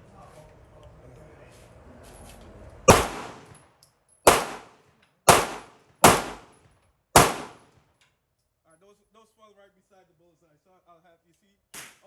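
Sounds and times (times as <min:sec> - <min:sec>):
pistol shots: 0:02.9 - 0:03.5, 0:04.3 - 0:04.7, 0:05.3 - 0:06.5, 0:07.2 - 0:07.6.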